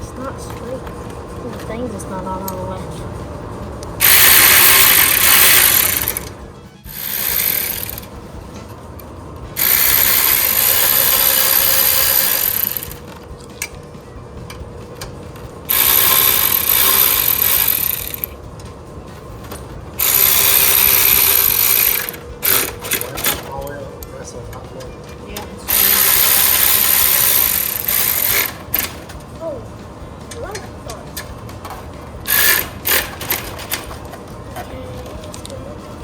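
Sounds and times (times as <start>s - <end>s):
ratchet wrench clicking: 4.0s - 8.1s, 9.6s - 13.8s, 14.5s - 18.7s, 20.0s - 23.5s, 25.7s - 29.0s, 31.2s - 34.0s.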